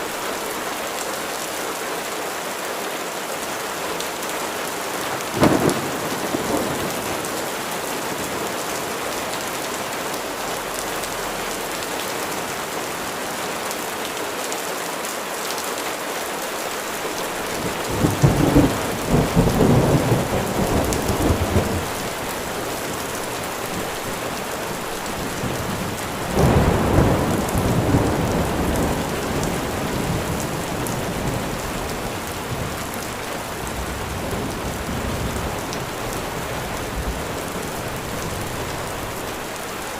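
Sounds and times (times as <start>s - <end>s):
steady rain falling: 0.0s - 39.9s
thunder rumbling: 5.3s - 9.0s, 17.2s - 39.5s.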